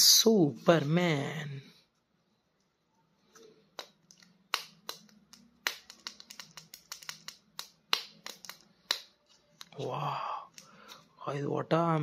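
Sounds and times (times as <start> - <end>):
plastic clicks and taps: 3.8 - 9.8.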